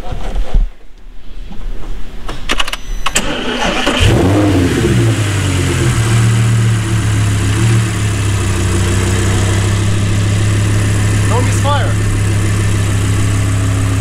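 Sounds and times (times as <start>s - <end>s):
car engine starting and idling: 3.0s - 14.0s.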